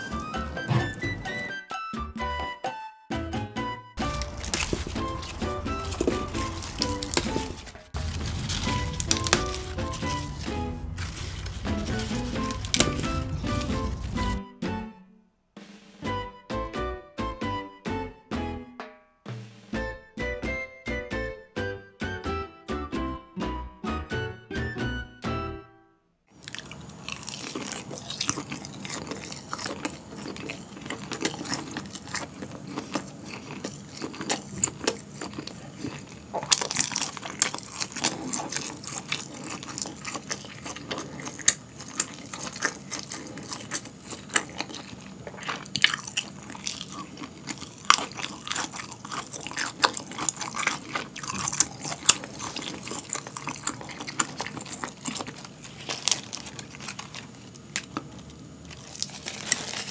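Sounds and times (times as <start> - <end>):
person chewing with wet mouth sounds: 0.0 - 1.3, 4.0 - 14.4, 26.4 - 59.9.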